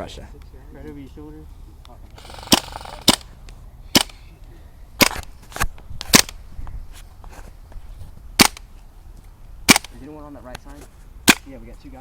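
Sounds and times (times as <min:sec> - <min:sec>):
airsoft gun shots: 0:02.2 - 0:03.3.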